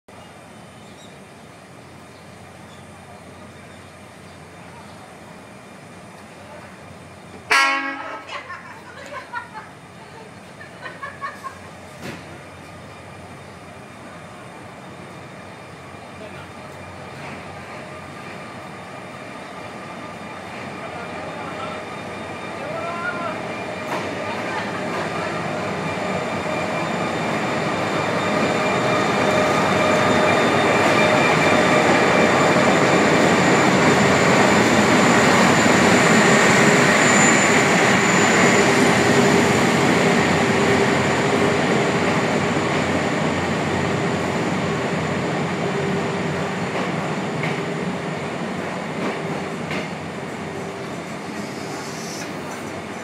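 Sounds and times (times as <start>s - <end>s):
train rumbling on rails: 0.1s - 53.0s.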